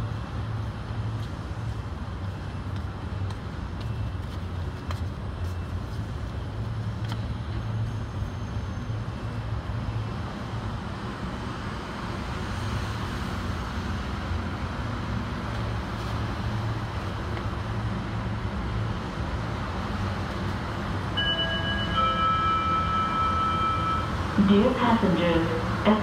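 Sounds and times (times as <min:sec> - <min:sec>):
train rumbling on elevated track: 0:00.0 - 0:26.0
chime of steady tones: 0:21.2 - 0:24.7.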